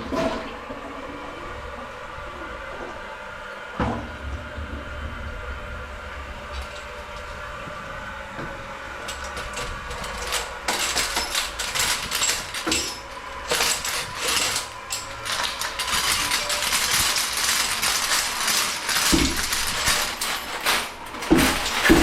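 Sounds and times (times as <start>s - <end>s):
drain auger coil scraping: 6.2s - 22.0s.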